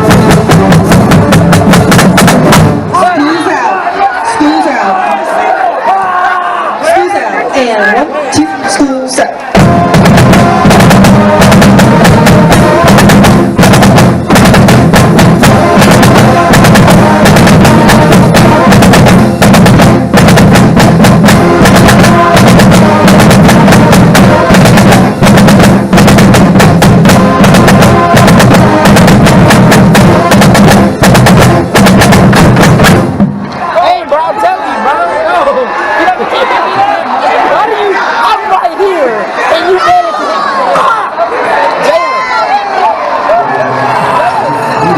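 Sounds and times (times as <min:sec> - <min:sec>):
bass drums pulsing: 0:00.0 - 0:03.0, 0:09.6 - 0:33.5
snare and tenor drums: 0:00.0 - 0:03.0, 0:09.6 - 0:33.4.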